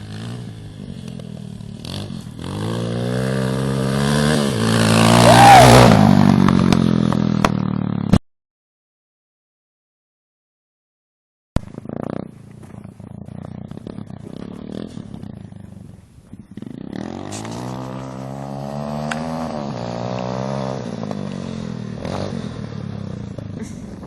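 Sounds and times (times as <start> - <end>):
dirt bike engine running: 0.0 - 8.2, 11.6 - 24.0.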